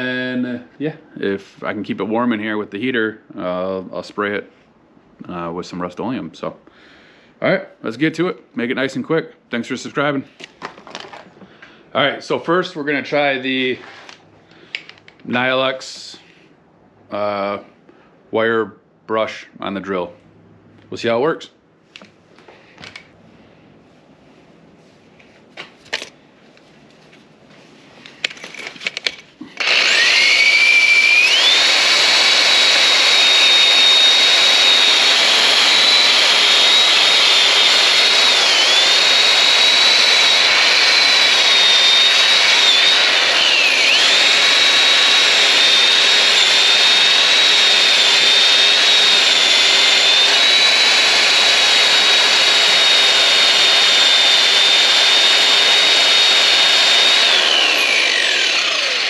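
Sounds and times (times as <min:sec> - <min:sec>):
electric drill whining: 0:29.5 - 0:59.0.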